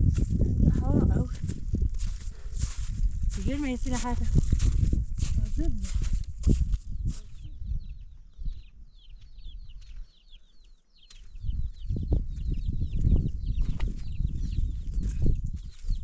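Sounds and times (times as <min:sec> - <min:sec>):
chickens chirping: 0:07.0 - 0:15.8.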